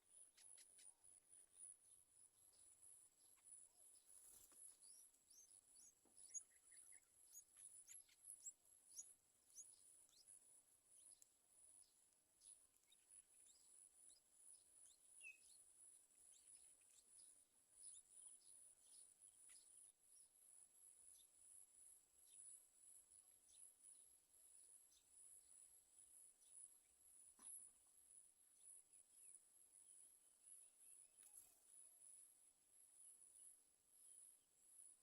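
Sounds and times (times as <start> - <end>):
soft ticks: 11.1 - 11.3.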